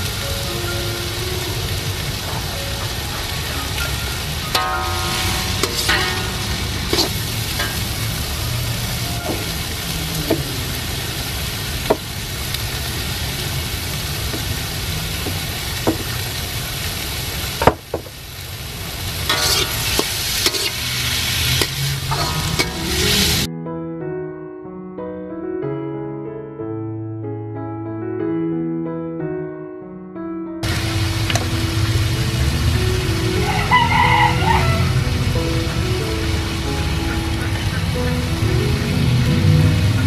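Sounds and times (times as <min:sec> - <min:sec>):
vegetables sizzling in a wok: 0:00.0 - 0:23.5, 0:30.6 - 0:39.3
utensil knocking on wok: 0:15.2 - 0:16.2.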